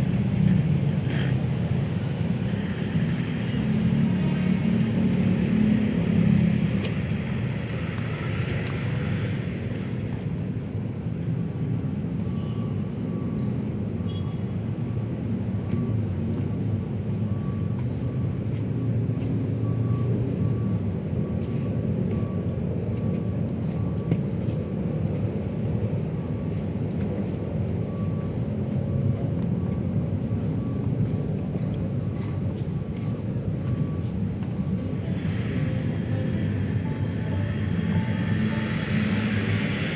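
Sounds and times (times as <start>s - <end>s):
city road traffic rumble: 0.0s - 39.9s
faint high beep: 12.2s - 15.0s, 33.6s - 39.9s.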